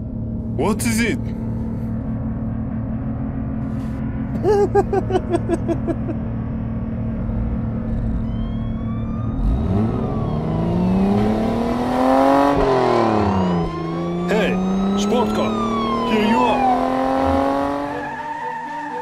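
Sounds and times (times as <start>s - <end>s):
low engine hum: 0.0s - 18.0s
car engine revving up: 6.9s - 18.2s.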